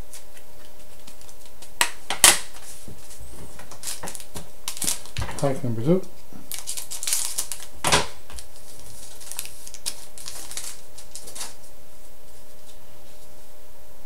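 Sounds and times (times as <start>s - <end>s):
cards rustling and clicking: 0.1s - 5.6s, 6.5s - 11.6s
wrapper tearing: 3.7s - 5.2s, 6.5s - 11.6s.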